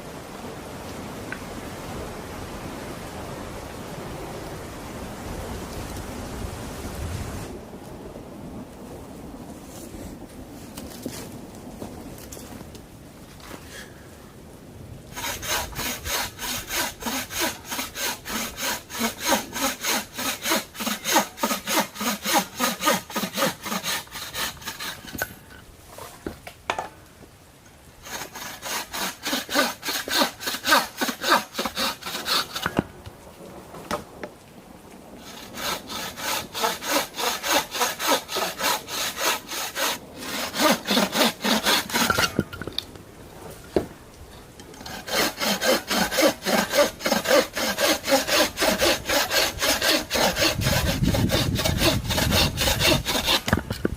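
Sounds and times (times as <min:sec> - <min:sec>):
hand saw cutting wood: 0:15.2 - 0:25.4, 0:28.0 - 0:32.9, 0:35.2 - 0:42.5, 0:44.8 - 0:53.9.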